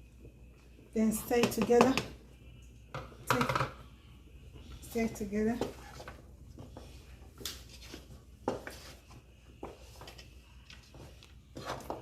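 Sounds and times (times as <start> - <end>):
low steady hum: 0.0 - 12.0
spoon knocking and scraping pot: 1.4 - 2.1.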